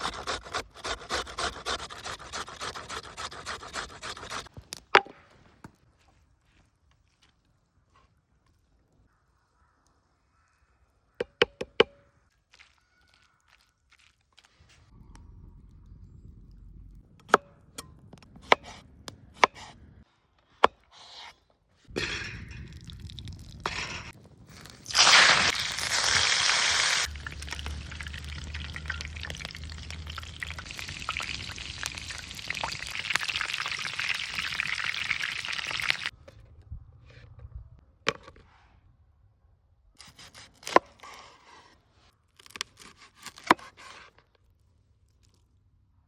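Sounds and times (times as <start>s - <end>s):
meat sizzling in hot fat: 22.8s - 36.1s.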